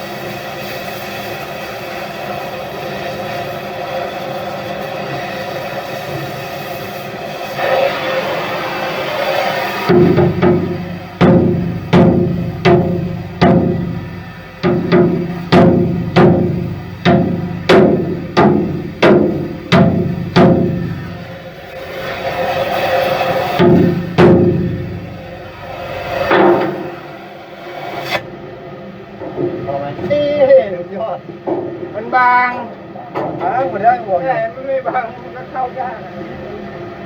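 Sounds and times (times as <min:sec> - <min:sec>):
percussion background music: 0:09.9 - 0:28.2
ringing drum strikes: 0:09.9 - 0:28.2.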